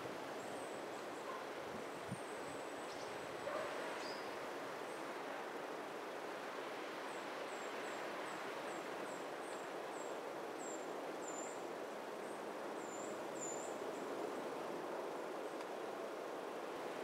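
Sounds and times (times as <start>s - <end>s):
outdoor background noise: 0.0s - 17.0s
songbird high chirps: 4.0s - 4.3s.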